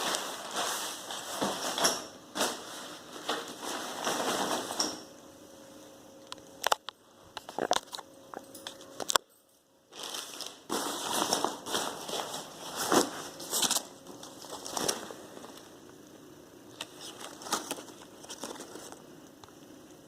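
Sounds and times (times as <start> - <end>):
fabric rustling and crinkling: 0.0 - 5.0, 9.9 - 15.8.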